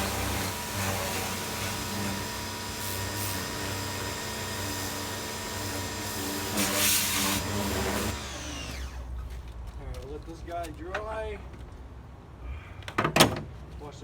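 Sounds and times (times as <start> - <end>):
pressure washer motor hum: 0.0 - 9.1.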